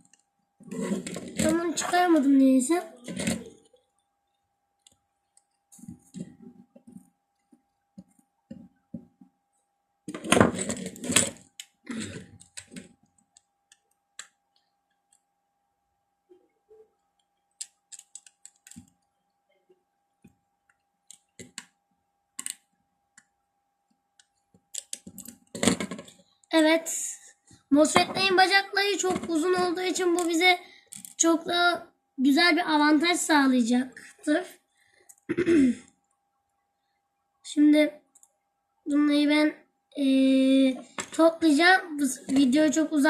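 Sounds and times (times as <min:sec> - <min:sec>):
faint high tone: 0:16.3 - 0:16.9.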